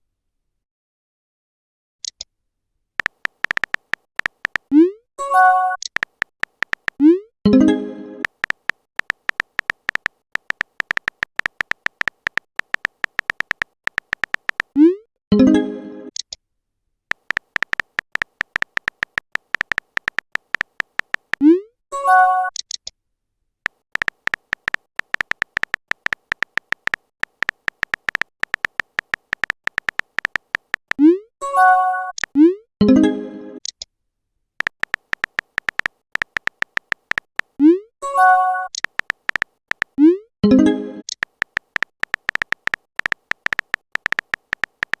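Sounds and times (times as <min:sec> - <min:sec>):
pitched typing clicks: 0:03.0 - 0:07.2, 0:08.2 - 0:15.0, 0:17.1 - 0:21.6, 0:23.6 - 0:31.2, 0:34.6 - 0:40.2, 0:41.0 - 0:45.0.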